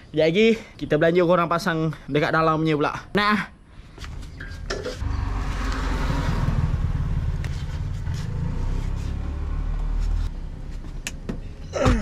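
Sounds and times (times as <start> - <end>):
vehicle engine running: 5.0 - 11.6.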